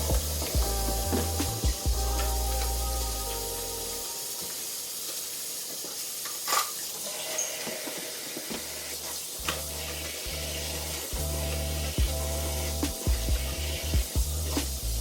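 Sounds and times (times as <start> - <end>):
background music: 0.0 - 4.8, 9.4 - 15.0
steady hiss: 0.0 - 15.0.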